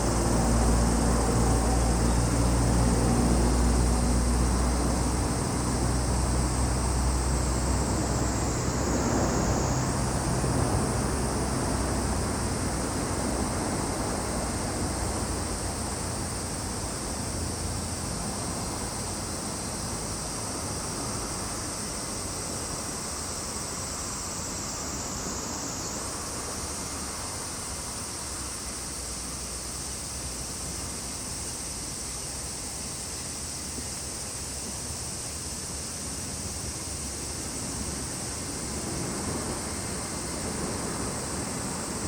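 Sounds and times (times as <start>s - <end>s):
low rumble of passing vehicle: 0.0s - 23.0s, 36.4s - 42.0s
insects droning: 0.0s - 42.0s.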